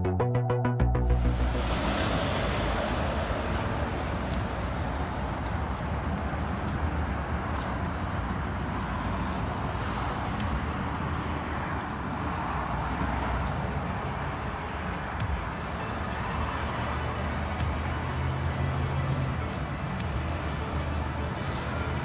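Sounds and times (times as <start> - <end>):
car engines rumbling: 1.0 - 7.0.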